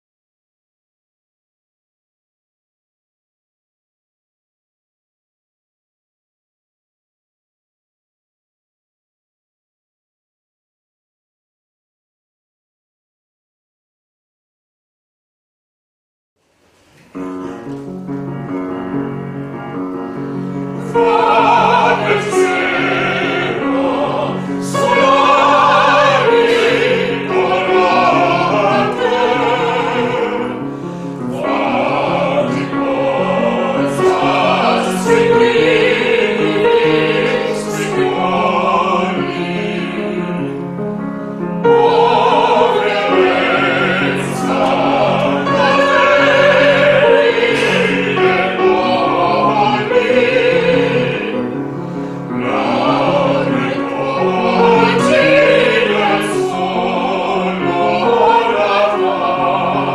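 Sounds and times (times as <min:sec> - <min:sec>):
musical accompaniment: 0:16.4 - 0:59.9
classical singing with vibrato: 0:16.5 - 0:59.9.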